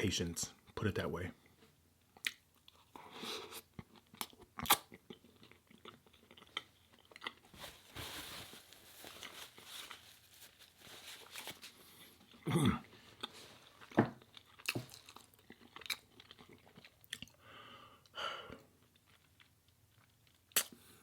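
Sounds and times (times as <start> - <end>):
chewing and biting food: 3.7 - 7.5, 13.2 - 17.4.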